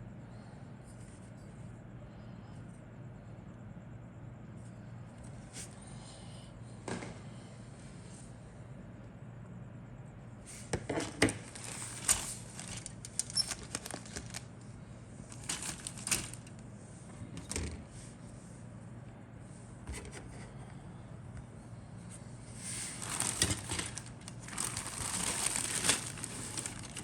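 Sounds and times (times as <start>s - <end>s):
steady low hum: 0.0s - 27.0s
plastic parts clicking and clattering: 11.0s - 14.4s, 15.3s - 16.5s, 23.0s - 27.0s.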